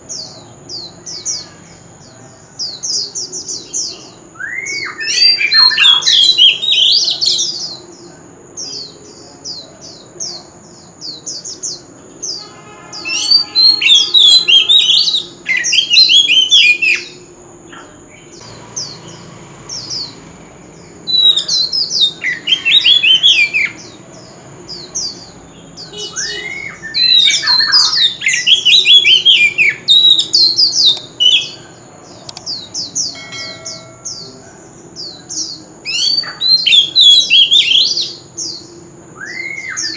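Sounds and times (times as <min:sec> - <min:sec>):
bird singing whistled phrases: 0:04.4 - 0:07.4, 0:18.5 - 0:24.0, 0:24.7 - 0:31.6, 0:39.2 - 0:39.9
thin high whine: 0:33.2 - 0:34.9.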